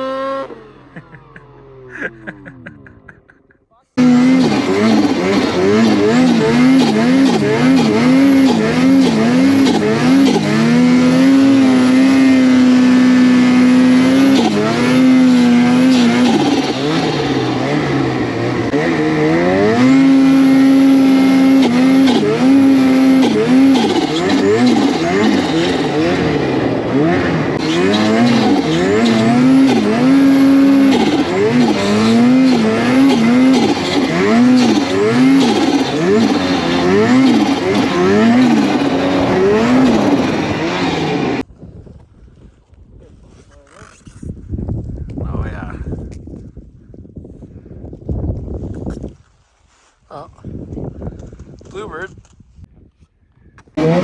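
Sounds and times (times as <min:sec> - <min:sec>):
snowmobile engine revving: 0:00.0 - 0:41.4, 0:53.8 - 0:54.0.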